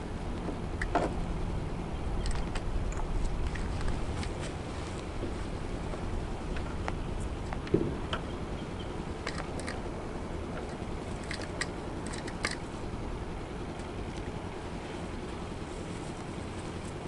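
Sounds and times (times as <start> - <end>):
low background noise: 0.0 - 17.0.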